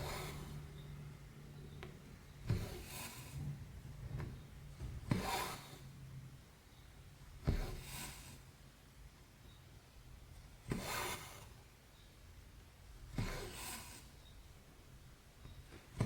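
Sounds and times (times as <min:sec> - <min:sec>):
thread swishing through fabric: 0:00.0 - 0:00.7, 0:02.4 - 0:03.5, 0:05.0 - 0:06.0, 0:13.1 - 0:14.2.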